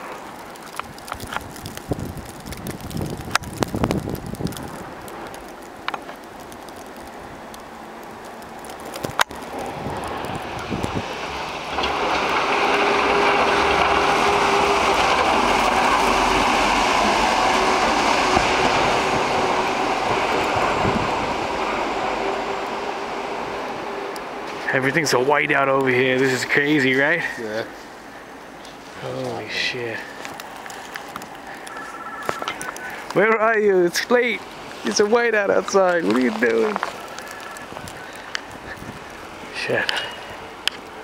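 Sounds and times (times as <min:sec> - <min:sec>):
passing vehicle rushing hum: 0:09.4 - 0:25.5.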